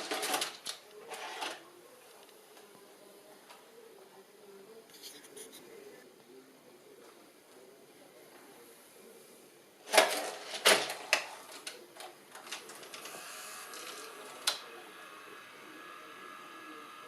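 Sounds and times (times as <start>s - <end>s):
motor whir with faint whine: 12.8s - 17.0s.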